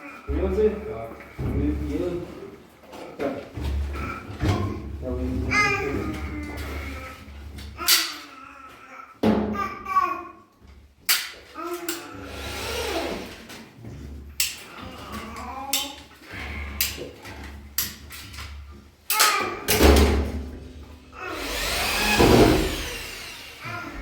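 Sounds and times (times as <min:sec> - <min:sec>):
handheld power tool running: 0:11.9 - 0:13.4, 0:21.2 - 0:24.0.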